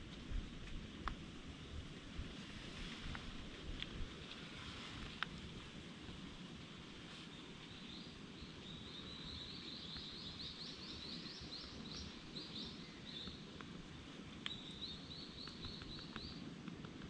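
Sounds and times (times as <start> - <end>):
faint outdoor rumble: 0.0 - 17.0
small bird chirping: 7.2 - 13.5, 14.4 - 16.4.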